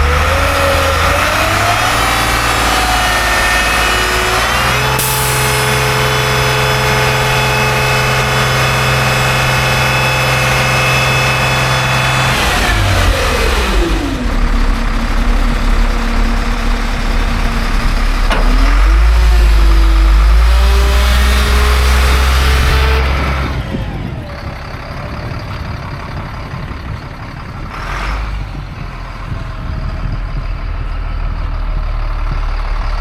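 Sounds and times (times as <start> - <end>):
diesel truck engine revving and idling: 0.0 - 33.0.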